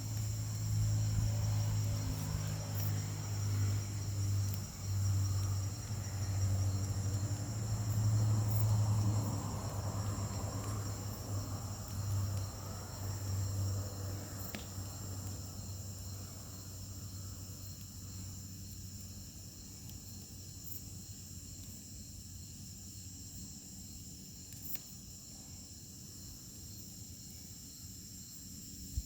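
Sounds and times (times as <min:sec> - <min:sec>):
low hum: 0:00.0 - 0:16.4
crickets chirring: 0:00.0 - 0:29.0.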